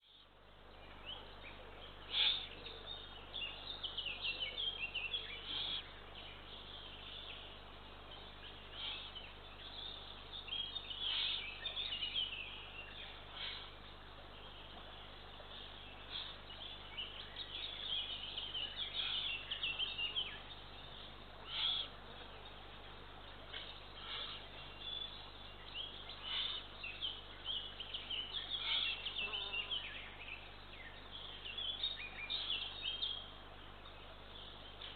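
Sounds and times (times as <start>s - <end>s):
harsh bird calls: 2.1s - 2.8s, 10.9s - 12.0s, 21.4s - 22.0s, 23.5s - 25.2s, 25.8s - 30.2s.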